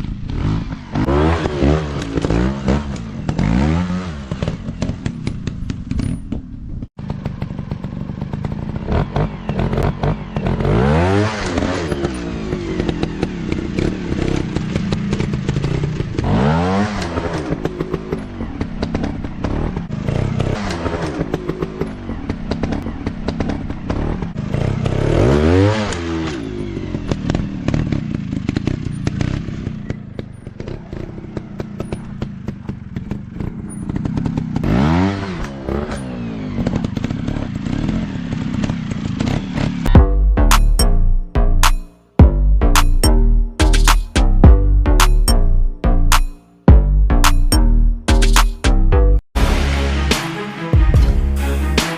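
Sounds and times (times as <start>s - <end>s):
dirt bike engines revving: 0.0s - 5.5s, 7.1s - 39.9s.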